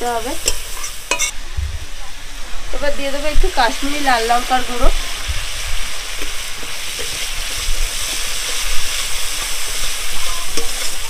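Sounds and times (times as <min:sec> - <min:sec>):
spices sizzling in hot oil: 0:00.0 - 0:11.0
metal spatula stirring: 0:00.4 - 0:01.3, 0:06.2 - 0:11.0.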